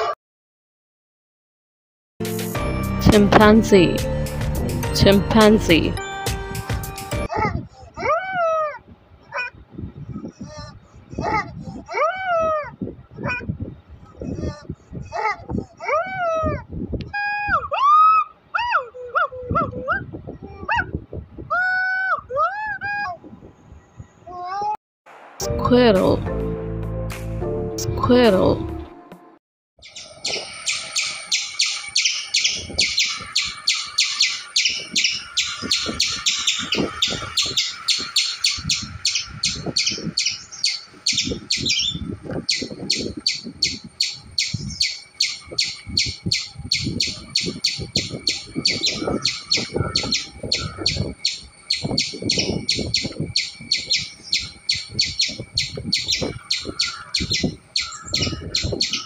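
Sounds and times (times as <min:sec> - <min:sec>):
squirrel chattering: 0:29.8 - 0:59.0.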